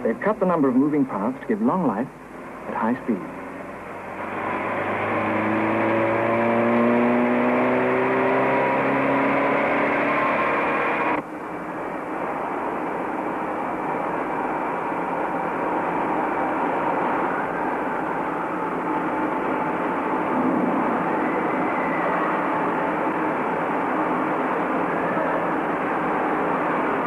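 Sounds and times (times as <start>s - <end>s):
car engine running: 0.0s - 11.3s
rough mechanical drone: 2.2s - 27.0s.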